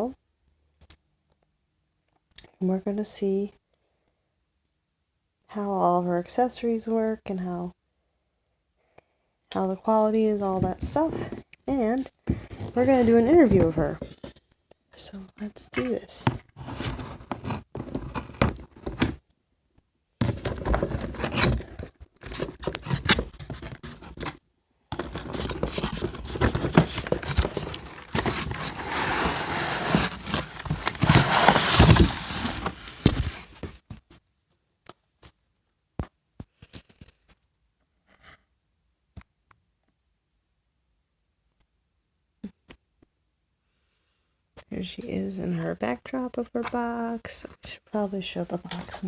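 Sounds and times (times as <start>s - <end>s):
cardboard and plastic tearing: 16.5s - 19.2s, 20.2s - 24.4s, 25.0s - 33.7s.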